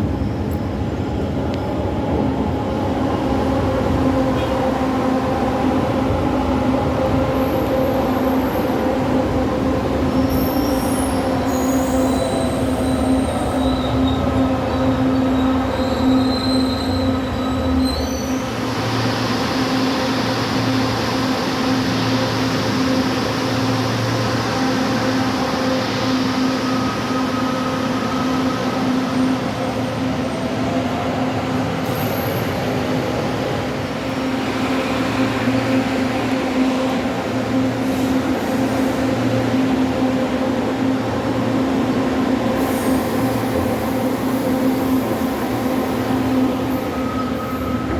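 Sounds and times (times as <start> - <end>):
high wheel squeals: 15.3 - 18.6
hiss: 42.6 - 46.8.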